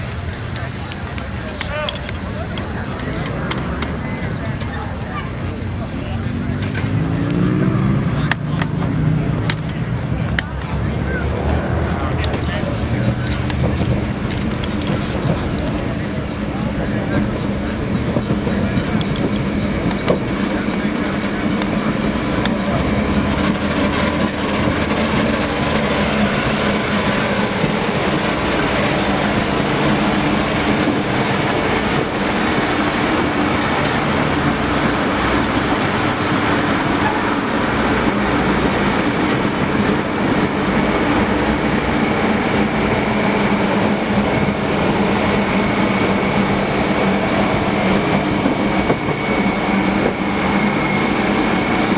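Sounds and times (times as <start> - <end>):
high wheel squeal: 0.0 - 7.9, 12.4 - 51.9
train wheels rumbling on track: 11.4 - 51.9.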